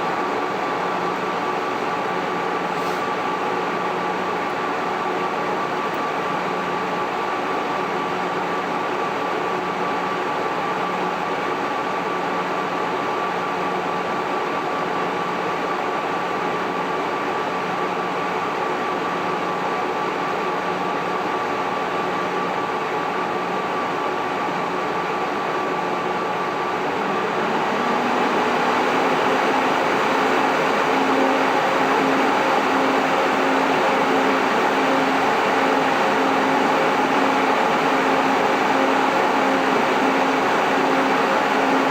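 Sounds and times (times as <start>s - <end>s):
cooling fans whooshing: 26.1s - 41.9s.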